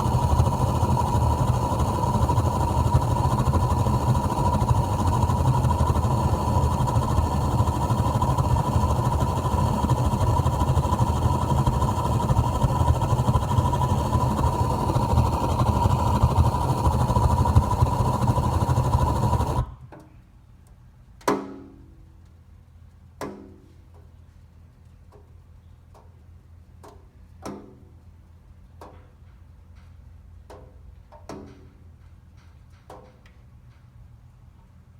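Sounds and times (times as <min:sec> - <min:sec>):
water heater rumble: 0:00.0 - 0:19.8
faint constant whine: 0:00.0 - 0:34.9.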